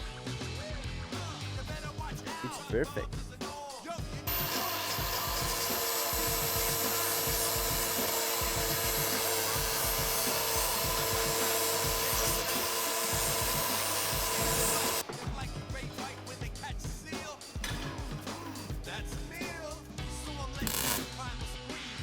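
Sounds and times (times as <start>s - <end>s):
angle grinder on steel: 4.3s - 15.0s, 20.6s - 21.2s.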